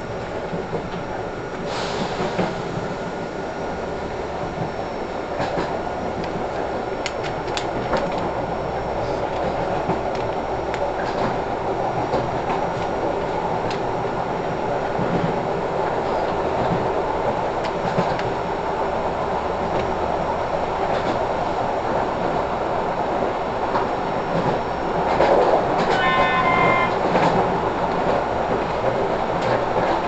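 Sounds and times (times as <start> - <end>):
train rumbling: 0.0 - 30.0
brief high-pitched tone: 25.9 - 27.0.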